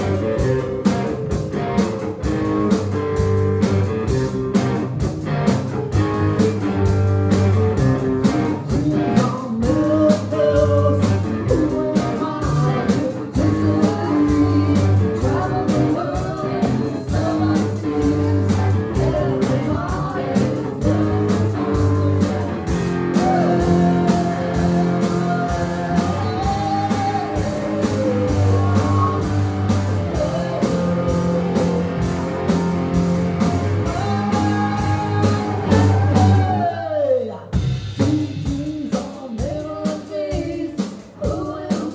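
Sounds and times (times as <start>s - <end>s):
bass line: 0.0s - 36.8s
electric guitar: 0.0s - 37.0s
drum beat: 20.0s - 36.6s.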